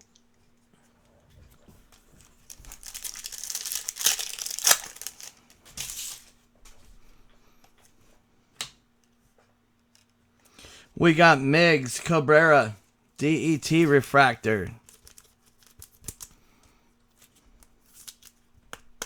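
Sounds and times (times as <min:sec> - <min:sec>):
cards rustling: 0:02.5 - 0:06.2
foil wrapper tearing and crinkling: 0:02.5 - 0:06.2.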